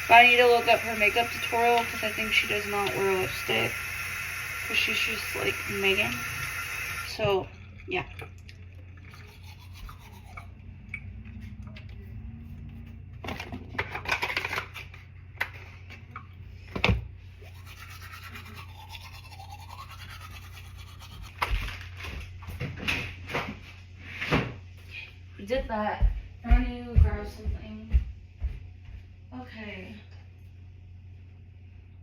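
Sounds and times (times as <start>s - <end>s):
low steady hum: 0.0s - 32.0s
toothbrush scrubbing teeth: 0.1s - 7.1s, 9.0s - 10.6s, 17.4s - 21.6s.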